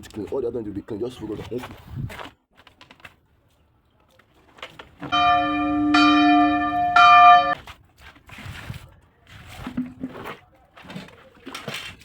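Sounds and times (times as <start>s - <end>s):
bell-like chime: 5.1s - 7.6s.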